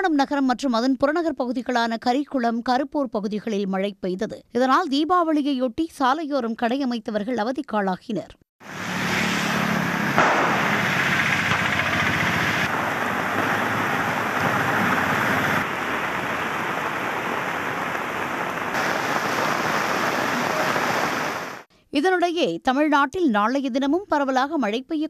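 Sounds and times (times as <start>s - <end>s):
small engine hum: 8.6s - 17.8s
heavy rain on wet street: 8.7s - 21.6s.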